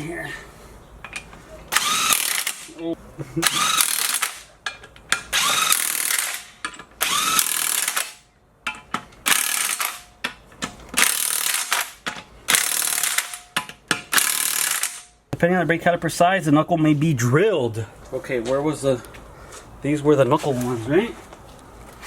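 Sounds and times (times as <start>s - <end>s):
power wrench whining bursts: 1.7s - 2.7s, 3.4s - 4.5s, 5.3s - 8.2s, 9.2s - 10.1s, 11.0s - 13.4s, 14.1s - 15.1s.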